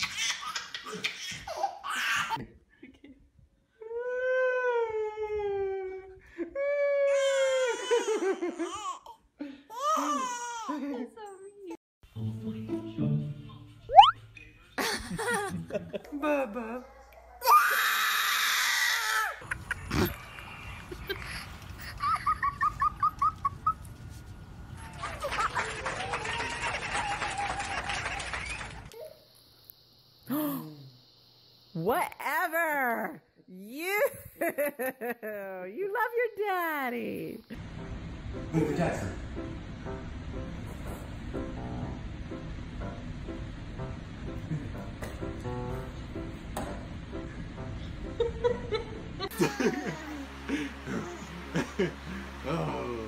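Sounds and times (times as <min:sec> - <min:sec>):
baby giggling: 0:00.0 - 0:02.4, 0:49.2 - 0:51.7
newborn baby crying: 0:07.0 - 0:10.7.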